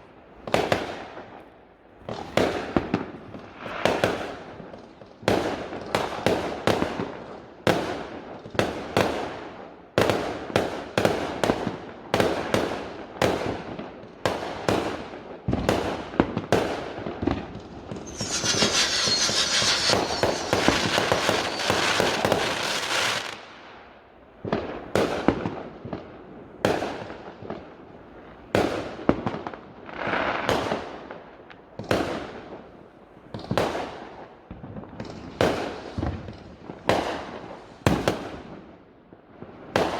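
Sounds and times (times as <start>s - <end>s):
firework crackling and hiss: 2.0s - 11.4s, 14.4s - 23.8s, 33.4s - 38.6s
firework bangs: 17.4s - 23.5s.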